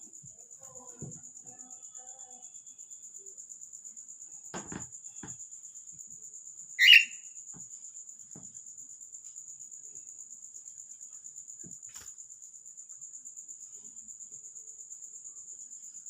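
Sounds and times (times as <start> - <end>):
cockatiel chirp: 6.8 - 7.2.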